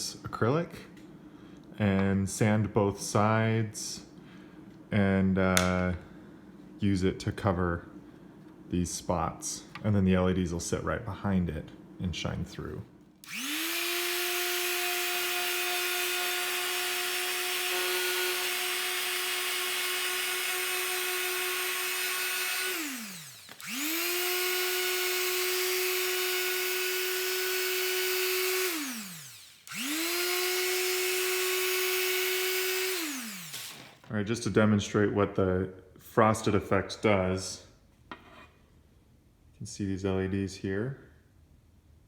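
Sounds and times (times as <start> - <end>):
power tool motor whining: 13.2 - 34.1.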